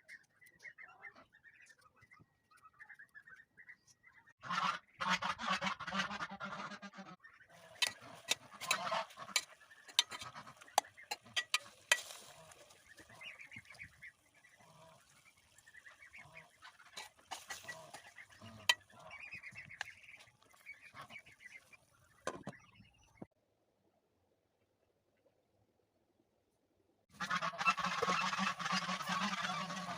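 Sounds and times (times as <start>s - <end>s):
farm birds calling: 0.0s - 23.3s, 27.1s - 29.9s.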